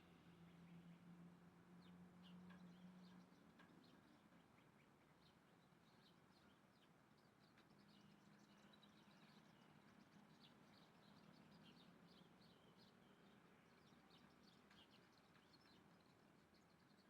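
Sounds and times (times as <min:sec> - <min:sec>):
small birds chirping: 0:01.8 - 0:17.0.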